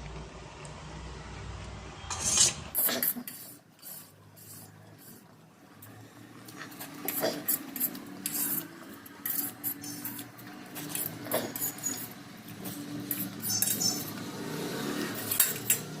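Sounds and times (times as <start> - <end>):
cutlery clinking against a dish: 6.6 - 14.2, 15.0 - 16.0.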